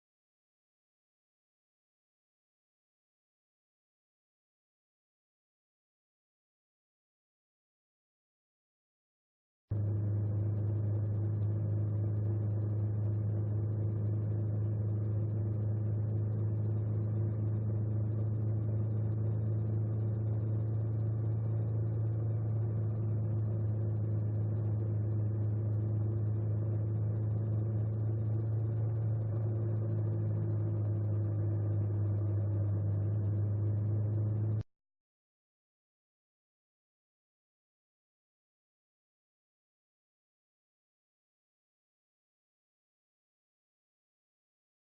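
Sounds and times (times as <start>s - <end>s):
engine running steadily: 9.7s - 34.6s.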